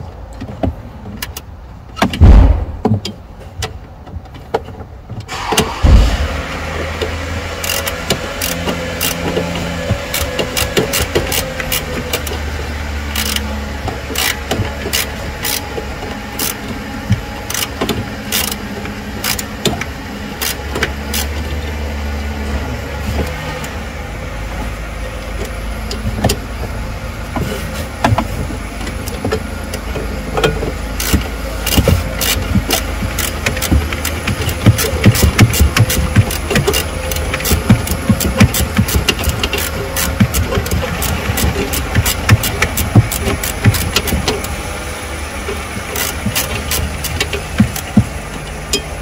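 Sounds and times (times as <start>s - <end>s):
car engine running: 5.3s - 49.0s
metallic clicks of hand tools: 7.6s - 12.4s, 13.1s - 13.5s, 17.5s - 18.6s, 19.2s - 21.5s, 29.9s - 44.6s, 45.8s - 49.0s.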